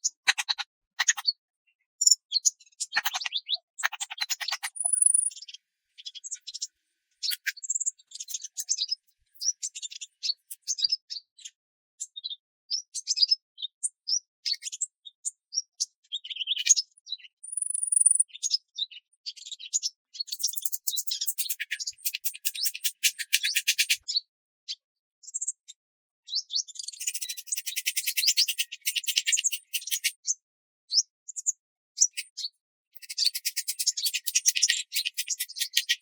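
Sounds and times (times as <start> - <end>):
wild birds chirping: 0.0 - 1.4, 2.0 - 11.2, 20.3 - 24.0, 32.0 - 36.0.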